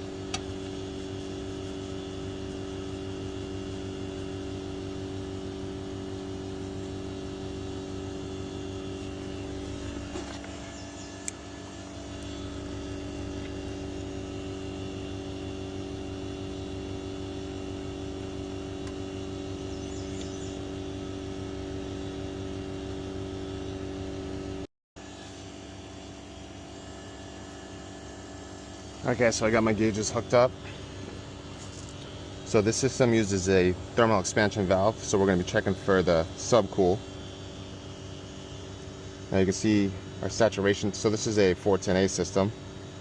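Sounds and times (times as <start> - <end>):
heat pump unit humming: 0.0 - 43.0
small click: 20.1 - 20.4.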